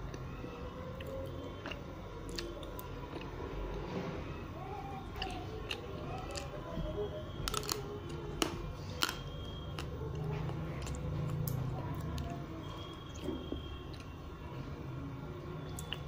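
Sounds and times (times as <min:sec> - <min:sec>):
chewing frozen chocolate: 0:00.0 - 0:03.8, 0:04.9 - 0:14.3, 0:15.6 - 0:16.0
mouth clicks and crunches: 0:00.9 - 0:03.8, 0:05.1 - 0:13.3, 0:15.7 - 0:16.0.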